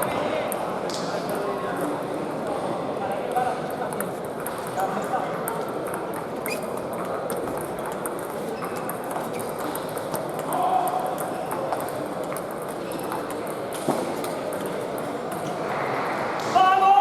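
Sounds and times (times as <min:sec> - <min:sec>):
murmur of voices: 0:00.0 - 0:17.0
table tennis balls clicking: 0:03.3 - 0:15.5.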